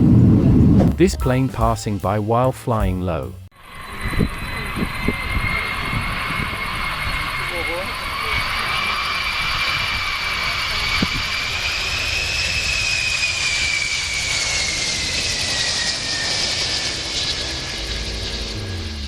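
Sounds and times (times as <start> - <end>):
aircraft engine roar passing: 0.0 - 1.0, 3.6 - 19.0
high engine whine: 3.1 - 19.0.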